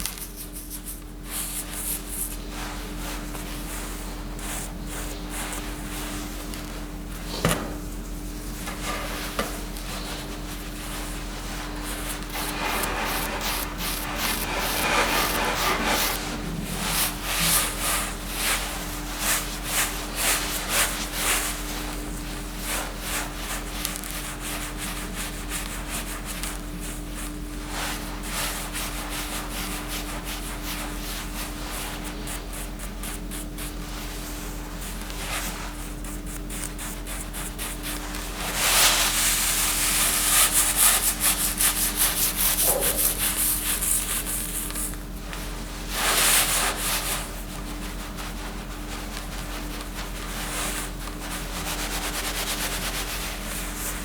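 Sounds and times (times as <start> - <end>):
steady hum: 0.0 - 23.6
rubbing or scraping strokes: 8.6 - 21.6, 38.0 - 44.9.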